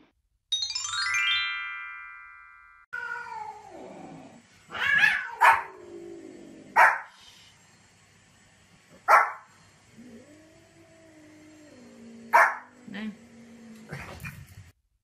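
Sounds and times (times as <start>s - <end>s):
bright rising chime: 0.5s - 2.9s
cat meowing: 3.0s - 3.7s, 4.7s - 5.7s
small dog barking: 4.9s - 5.8s, 6.8s - 7.1s, 9.0s - 9.5s, 12.3s - 12.7s.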